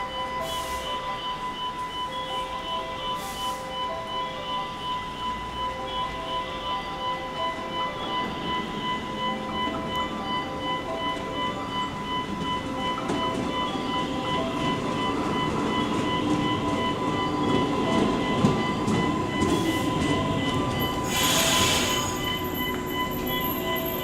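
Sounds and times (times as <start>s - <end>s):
air brake hiss: 0.4s - 0.9s, 3.2s - 3.7s, 21.0s - 22.3s.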